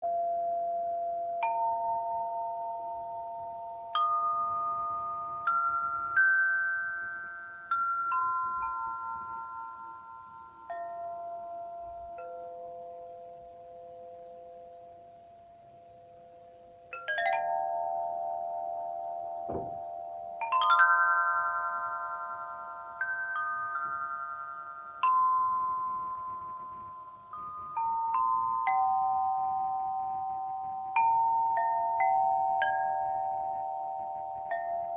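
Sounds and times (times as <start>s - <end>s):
metallophone notes ringing: 0.0s - 34.9s
soft low thud: 19.5s - 19.9s.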